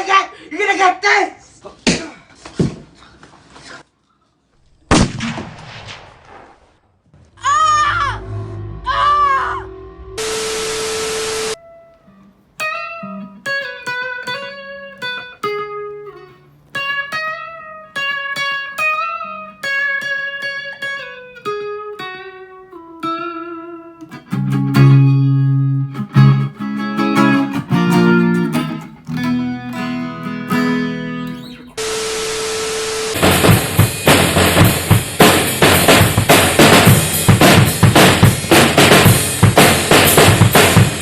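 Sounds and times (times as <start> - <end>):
hiss with steady tone: 10.2 - 11.6, 31.8 - 33.2
plucked guitar melody: 11.6 - 31.8
fuller accompaniment with bass: 24.4 - 31.3, 33.2 - 41.0.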